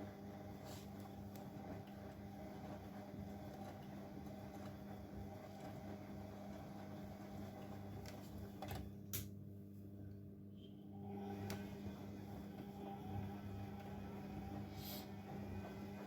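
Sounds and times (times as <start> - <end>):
washing machine humming: 0.0 - 16.0.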